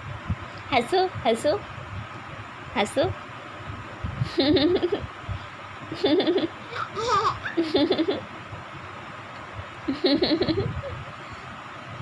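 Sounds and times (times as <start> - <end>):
person laughing: 4.2 - 5.1, 6.0 - 8.2, 9.9 - 11.0.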